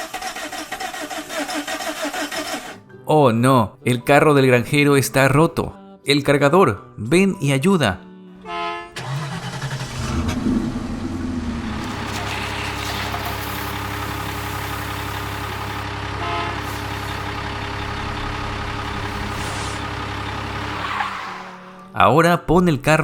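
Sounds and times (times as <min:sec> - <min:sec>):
wheel loader engine running: 0:09.0 - 0:21.7.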